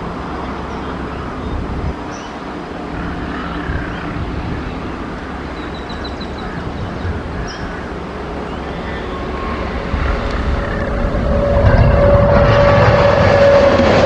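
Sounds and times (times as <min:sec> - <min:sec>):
electric locomotive rumbling: 0:00.0 - 0:14.0
birds chirping: 0:00.2 - 0:11.1.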